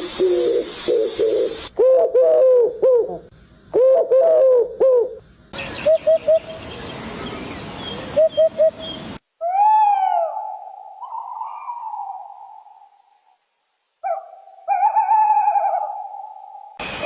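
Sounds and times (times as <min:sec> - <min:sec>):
background hiss: 0:00.0 - 0:17.0
high bird chirps: 0:05.6 - 0:09.1.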